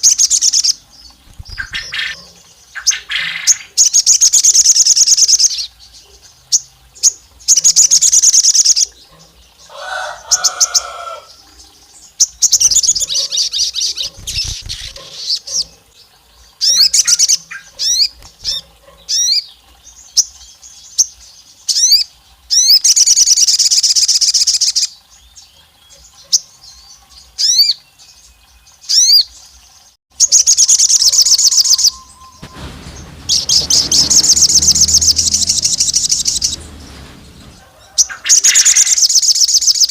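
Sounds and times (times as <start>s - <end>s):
bird chattering trills: 1.3s - 2.2s
rising whistled bird notes: 30.4s - 39.3s.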